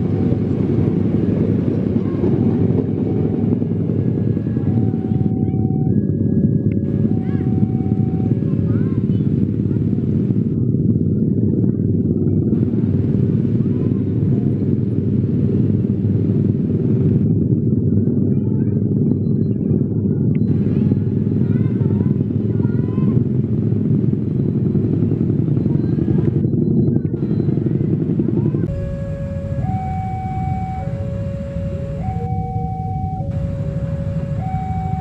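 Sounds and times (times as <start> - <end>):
train passing: 28.6 - 35.0.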